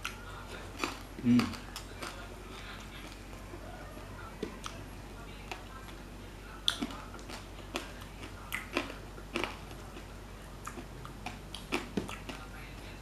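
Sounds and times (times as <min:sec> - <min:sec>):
chewing and mouth smacking: 0:00.0 - 0:03.4, 0:04.3 - 0:04.8, 0:06.6 - 0:12.7.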